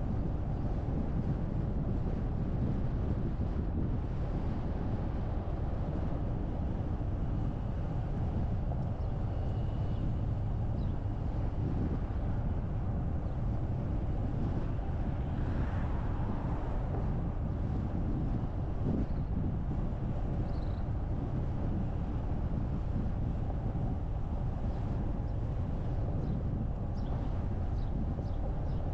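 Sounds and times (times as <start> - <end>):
car driving on road: 0.0 - 28.9
tyre and wind noise: 0.0 - 28.9.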